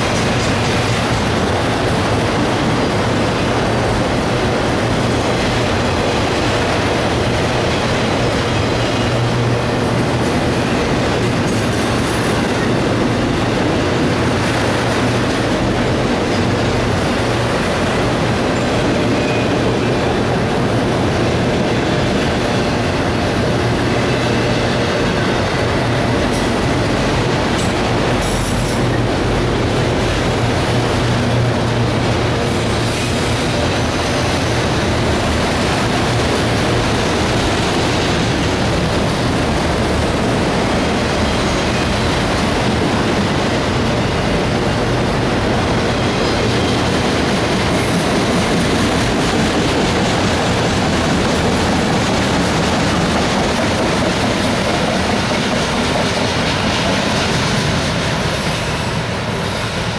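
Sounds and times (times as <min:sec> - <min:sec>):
freight train wheels rumbling on rails: 0:00.0 - 0:59.9.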